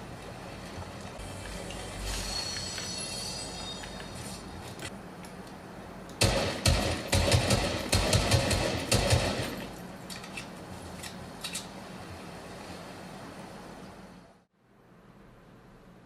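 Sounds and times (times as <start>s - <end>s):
loud game combat bangs: 6.2s - 9.6s.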